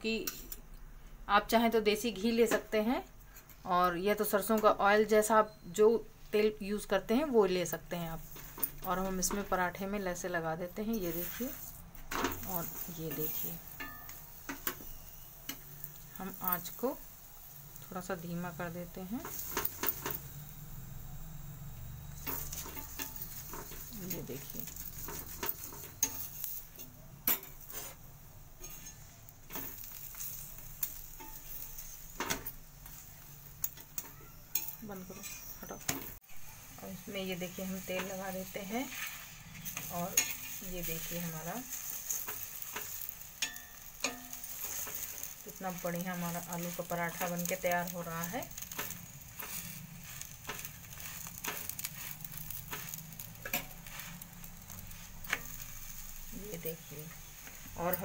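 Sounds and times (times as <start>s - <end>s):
flatbread sizzling in a pan: 3.3s - 58.0s
metal spatula scraping a pan: 10.9s - 17.2s, 22.1s - 36.6s, 37.4s - 58.0s.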